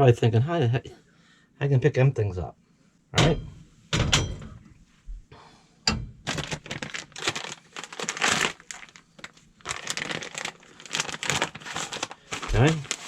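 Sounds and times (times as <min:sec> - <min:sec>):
plastic packaging crinkling: 0:06.2 - 0:13.0.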